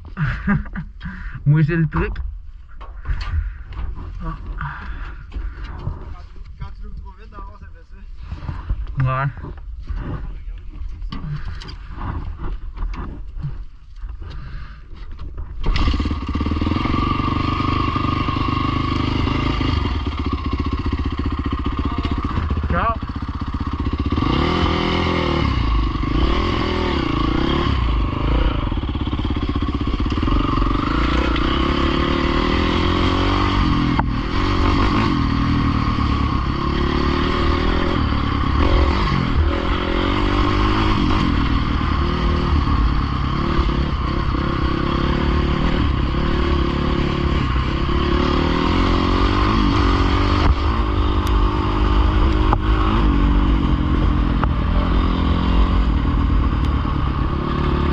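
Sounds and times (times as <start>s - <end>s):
dirt bike engine revving: 15.6s - 57.9s.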